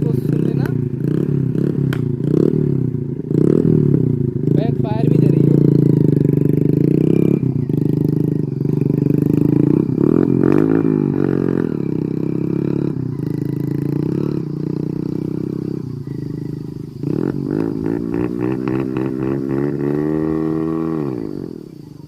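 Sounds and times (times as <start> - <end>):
exhaust backfire cracks: 0.0 - 15.7
motorcycle engine revving: 0.0 - 22.0.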